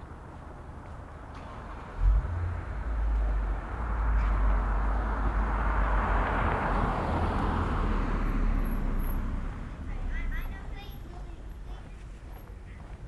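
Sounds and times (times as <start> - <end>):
car tyre noise passing: 1.2 - 10.3.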